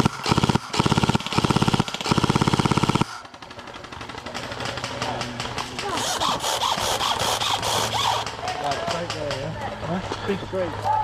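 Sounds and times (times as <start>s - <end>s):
airsoft rifle full-auto burst: 0.0s - 5.0s, 5.9s - 8.4s
faint scattered shots: 0.0s - 9.5s
distant voices: 3.0s - 11.0s.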